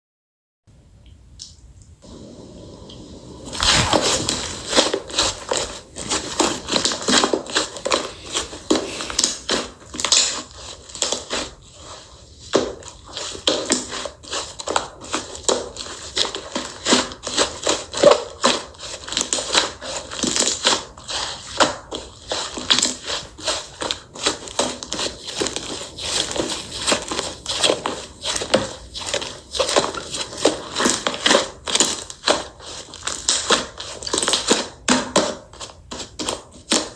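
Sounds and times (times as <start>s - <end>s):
slime crackling and popping: 3.5s - 11.3s, 22.6s - 35.4s.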